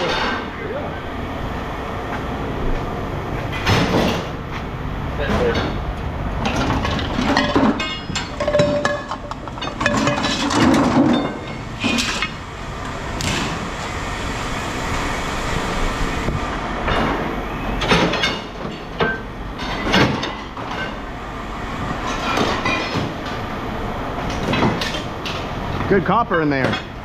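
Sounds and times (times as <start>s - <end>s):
steady low rumble: 0.0s - 26.0s
scrap metal clanking: 6.4s - 12.4s.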